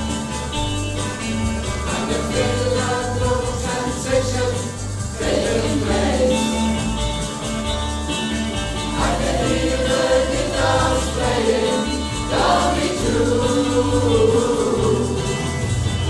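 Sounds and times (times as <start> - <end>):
steady bass accompaniment: 0.0 - 16.0
gospel choir singing: 1.6 - 7.2, 8.8 - 16.0.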